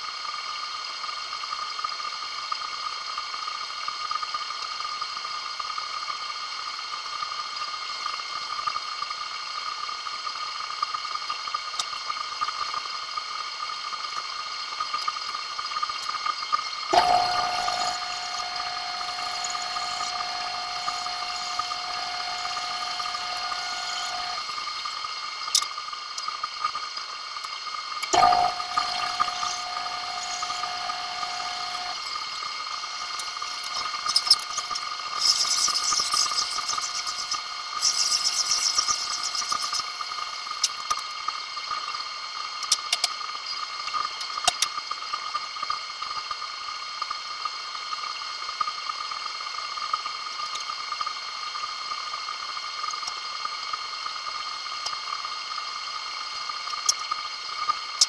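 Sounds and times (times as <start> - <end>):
steady machine hum: 6.7 - 42.6.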